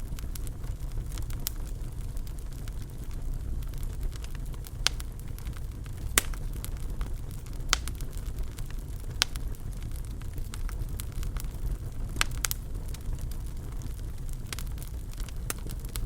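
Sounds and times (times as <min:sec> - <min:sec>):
burning wood popping: 0:00.0 - 0:16.0
fire flames rumbling: 0:00.0 - 0:16.0.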